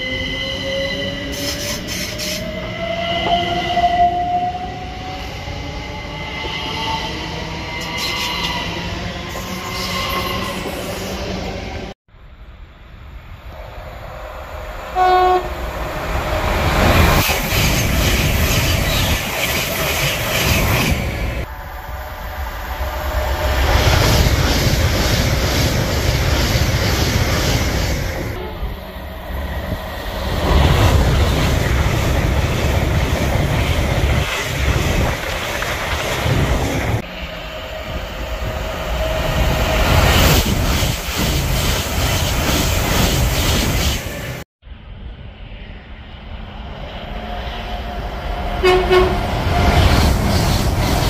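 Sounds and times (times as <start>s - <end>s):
trains rushing past: 0.0s - 51.0s
train horn blast: 14.9s - 15.7s, 48.6s - 49.5s.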